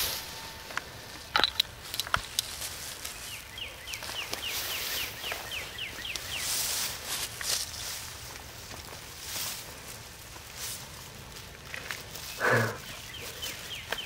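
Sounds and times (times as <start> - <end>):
sharp clicks: 0.6 - 2.5
bird singing downward notes: 3.1 - 6.7.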